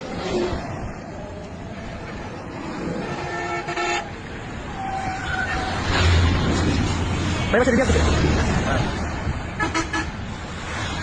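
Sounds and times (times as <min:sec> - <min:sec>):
road traffic: 0:00.0 - 0:11.0
car horn honking: 0:03.0 - 0:04.1.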